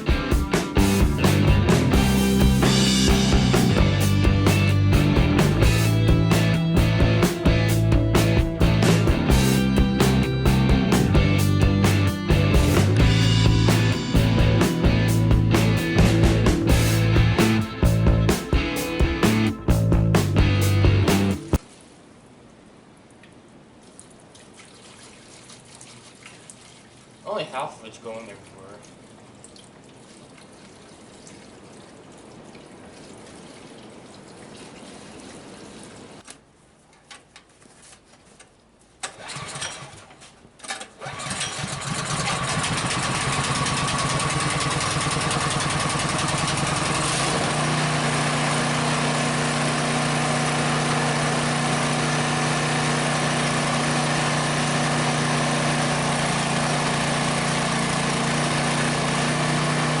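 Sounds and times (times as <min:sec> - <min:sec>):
small gasoline engine starting: 0:39.0 - 1:00.0.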